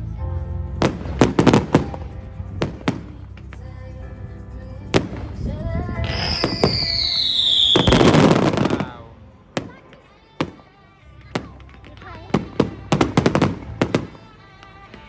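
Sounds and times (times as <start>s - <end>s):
music: 0.0s - 15.0s
whistling firework: 0.8s - 3.2s, 6.0s - 9.8s, 12.4s - 14.3s
firework bangs: 0.8s - 3.8s, 4.9s - 15.0s.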